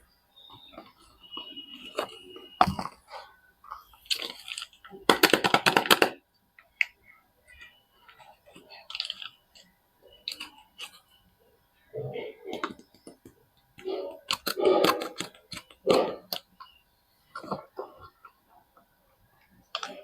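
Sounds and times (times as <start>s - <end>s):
wrapper crinkling and rustling: 8.2s - 9.4s.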